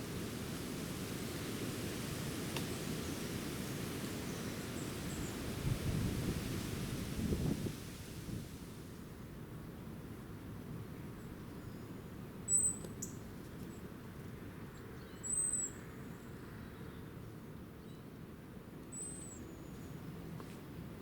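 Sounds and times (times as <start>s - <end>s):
small bird chirping: 12.5s - 13.2s.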